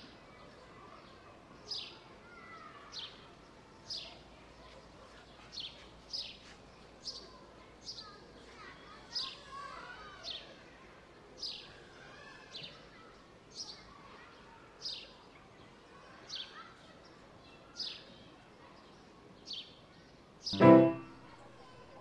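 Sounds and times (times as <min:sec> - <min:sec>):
outdoor background hiss: 0:19.1 - 0:22.0.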